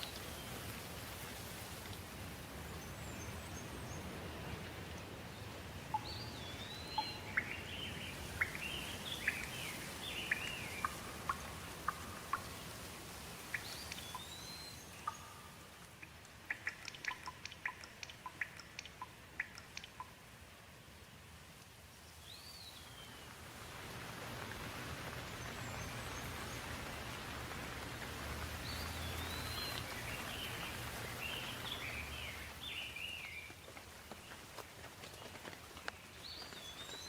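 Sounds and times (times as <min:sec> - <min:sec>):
steady rain hiss: 0:00.0 - 0:37.0
sharp close ticks: 0:15.1 - 0:20.2.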